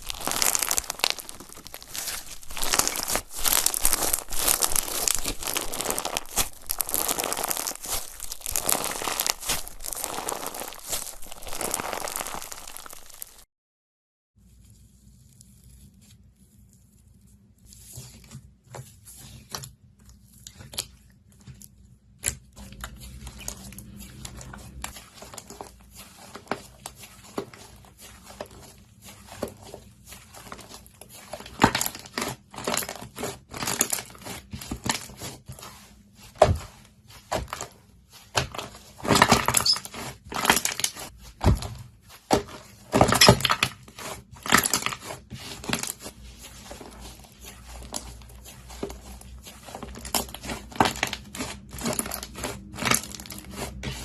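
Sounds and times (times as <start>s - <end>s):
slime squeezed by hand: 0.0s - 13.4s.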